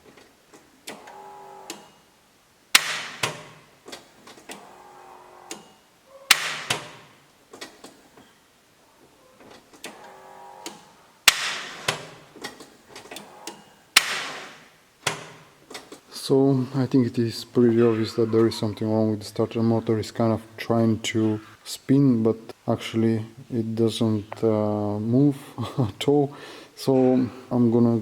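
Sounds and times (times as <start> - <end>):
starter solenoid clicking: 0.8 - 1.9.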